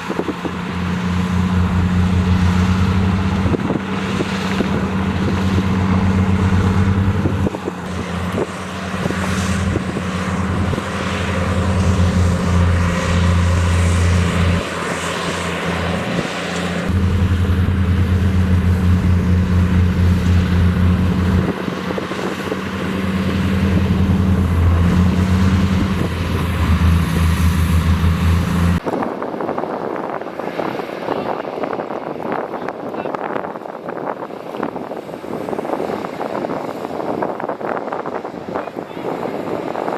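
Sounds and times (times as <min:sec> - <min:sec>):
heavy diesel engine throbbing: 0:00.0 - 0:28.8.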